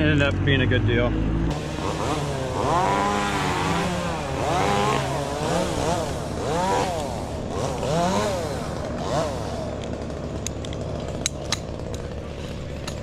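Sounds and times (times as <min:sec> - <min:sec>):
chainsaw revving: 0:01.5 - 0:13.0.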